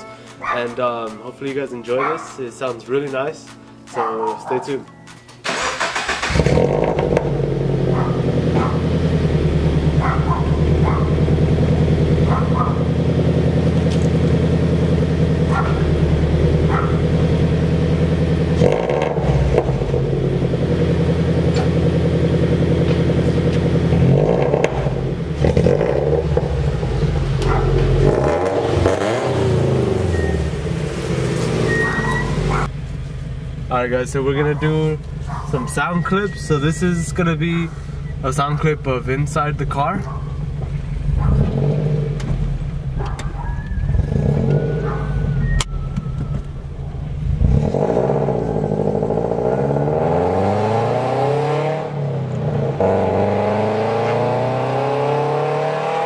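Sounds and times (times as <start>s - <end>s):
car engine idling: 5.5s - 49.9s
car engine revving: 5.5s - 56.0s.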